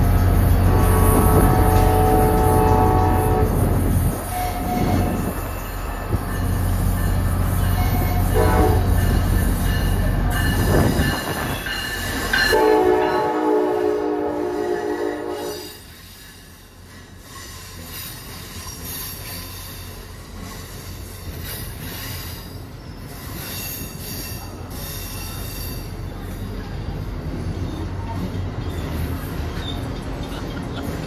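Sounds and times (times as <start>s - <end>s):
train wheels rumbling on rail: 0.0s - 31.0s
train horn: 0.6s - 5.4s, 7.8s - 9.1s, 12.4s - 15.8s
high wheel squeal: 4.2s - 8.4s.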